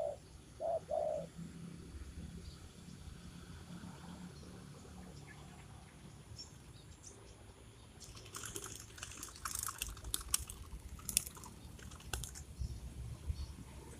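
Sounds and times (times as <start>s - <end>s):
sharp clicks and crackles: 8.0s - 12.5s.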